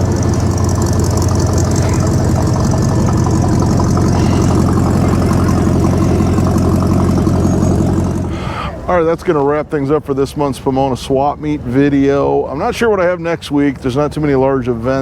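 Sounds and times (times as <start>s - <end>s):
old vehicle engine idling: 0.0s - 9.5s.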